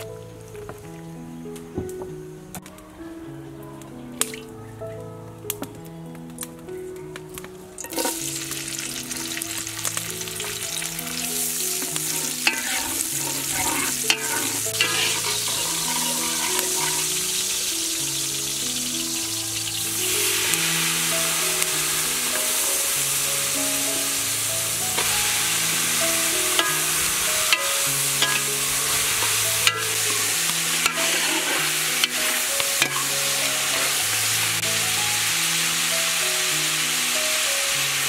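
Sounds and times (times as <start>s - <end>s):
slow background music: 0.0s - 38.0s
chicken sizzling in a pot: 7.8s - 38.0s
metal ladle clinking against pot: 11.8s - 17.1s, 26.6s - 34.0s.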